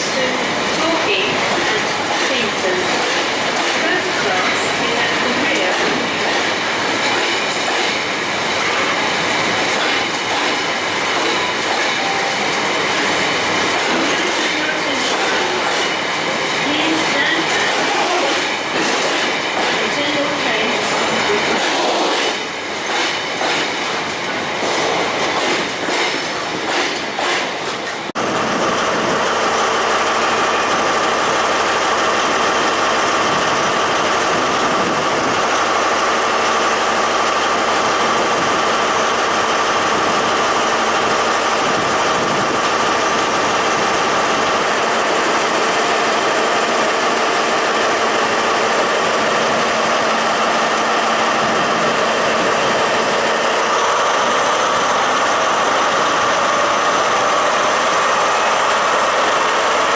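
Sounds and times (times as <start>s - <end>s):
steady train noise with hum: 0.0s - 59.9s
train wheels clattering over joints: 1.0s - 28.1s.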